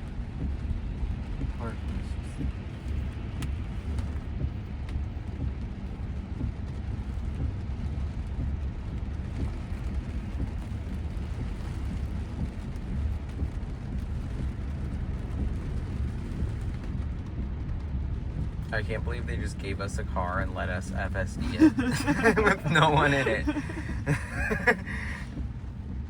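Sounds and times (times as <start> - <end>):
rain on a car: 0.0 - 26.0
tyre noise on wet road: 21.4 - 26.0.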